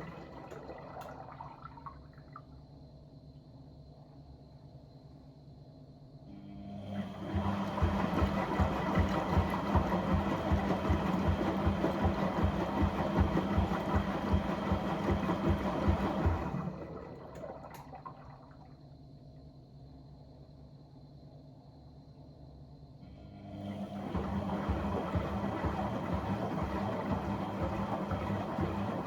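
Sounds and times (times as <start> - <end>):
pump motor humming: 0.0 - 1.6, 6.6 - 18.6, 23.2 - 29.0.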